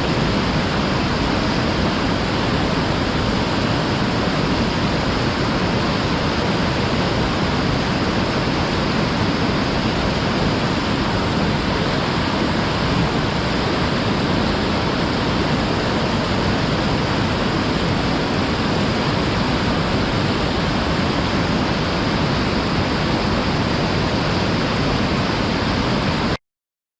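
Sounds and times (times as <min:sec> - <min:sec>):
waterfall roaring: 0:00.0 - 0:26.4.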